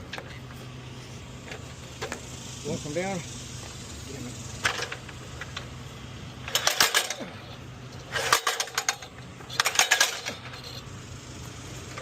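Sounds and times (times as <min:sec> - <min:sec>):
steady low hum: 0:00.0 - 0:12.0
metal clattering and rattling: 0:04.6 - 0:05.7, 0:06.4 - 0:10.8.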